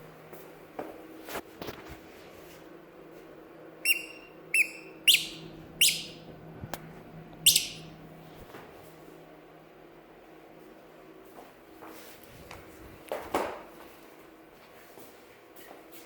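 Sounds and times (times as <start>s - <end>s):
high-pitched chirps: 3.8s - 6.2s, 7.5s - 7.9s.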